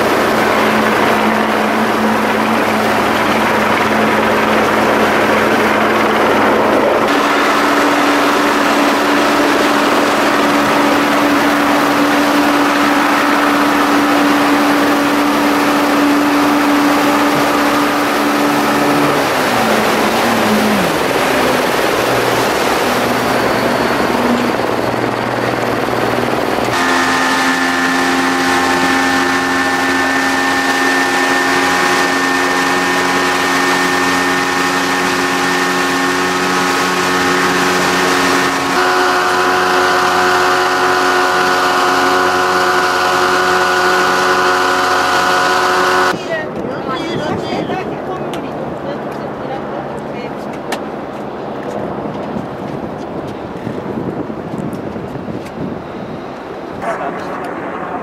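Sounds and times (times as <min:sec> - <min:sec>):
vehicle engine cabin hum: 0:00.0 - 0:46.2.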